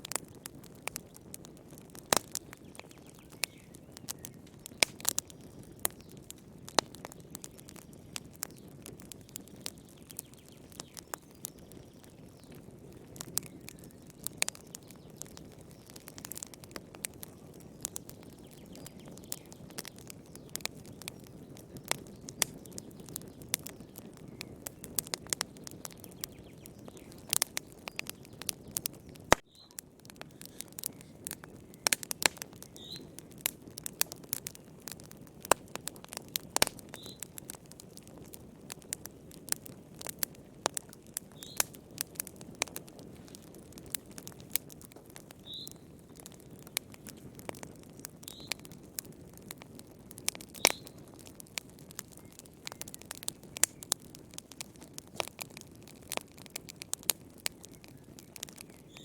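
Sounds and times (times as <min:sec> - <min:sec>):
wood fire crackling: 0:00.0 - 0:59.0
faint high chirp: 0:29.5 - 0:29.8.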